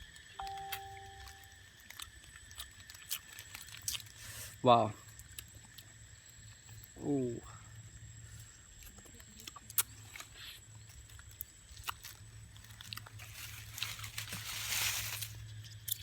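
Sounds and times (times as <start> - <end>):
small clicks and crackles: 1.7 - 4.3, 8.7 - 16.0
rustling: 12.6 - 15.6.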